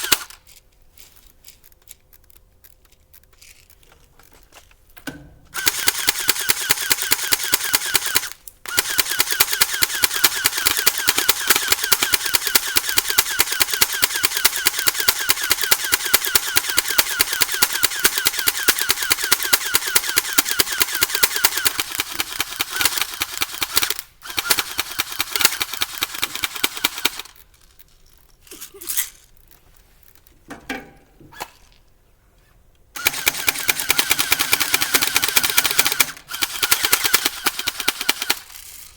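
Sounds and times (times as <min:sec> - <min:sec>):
airsoft gun automatic fire: 0:00.0 - 0:00.4, 0:05.5 - 0:27.4, 0:33.0 - 0:38.8.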